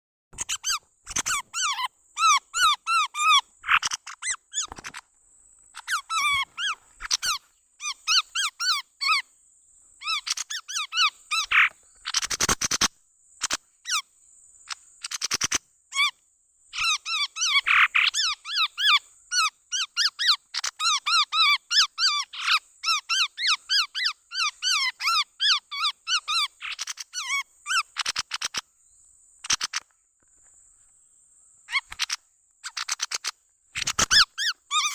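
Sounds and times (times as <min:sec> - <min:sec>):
sharp clicks: 0:04.6 - 0:05.1.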